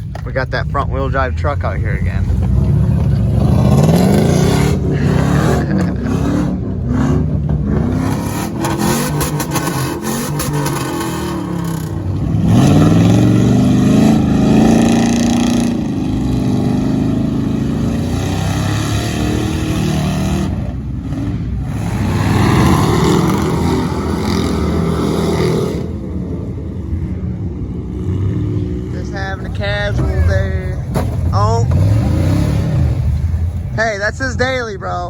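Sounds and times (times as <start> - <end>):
truck engine revving: 0.0 - 35.0.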